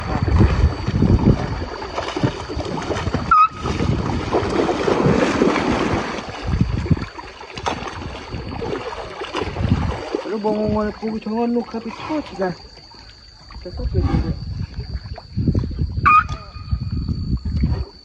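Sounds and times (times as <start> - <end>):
wind buffeting microphone: 0.0 - 12.6, 13.5 - 18.0
water splashing and sloshing: 0.0 - 18.0.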